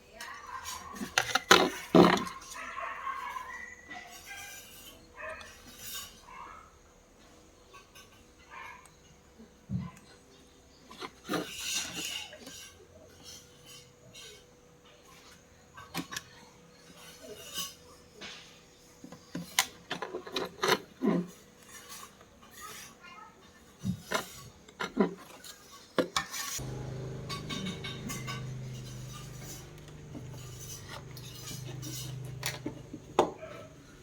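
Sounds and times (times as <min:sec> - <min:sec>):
low hum: 0:26.6 - 0:34.0.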